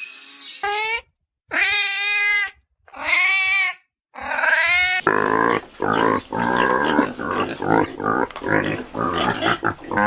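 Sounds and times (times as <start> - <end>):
pigs grunting and squealing: 0.6 - 10.0
cat meowing: 1.5 - 5.0.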